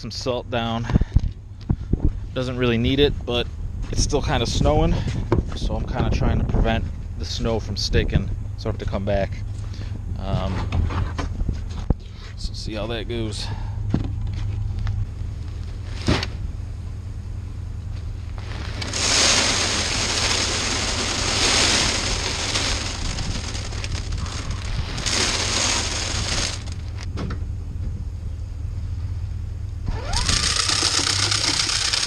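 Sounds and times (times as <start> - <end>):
truck engine humming: 0.0 - 32.0
hissing bursts: 18.6 - 26.9.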